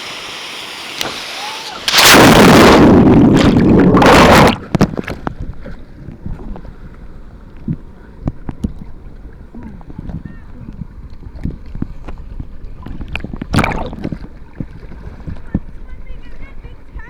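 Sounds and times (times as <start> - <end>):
loud rush of splashing water: 0.0 - 5.2, 13.5 - 14.2
low wash of water: 0.0 - 17.0.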